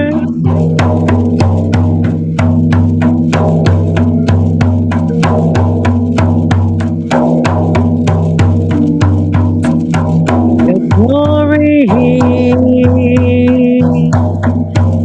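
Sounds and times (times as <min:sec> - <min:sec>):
low sustained drone: 0:00.0 - 0:11.0
steady drumming: 0:00.0 - 0:15.0.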